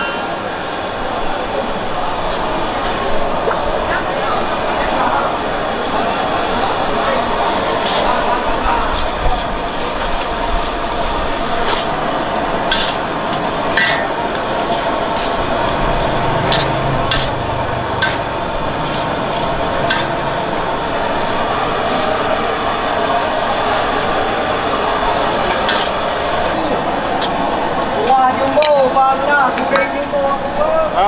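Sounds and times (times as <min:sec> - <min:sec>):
steady background noise: 0:00.0 - 0:31.0
metal utensil clinking on a pan: 0:13.8 - 0:14.2, 0:16.5 - 0:17.4, 0:18.0 - 0:18.3, 0:19.9 - 0:20.2.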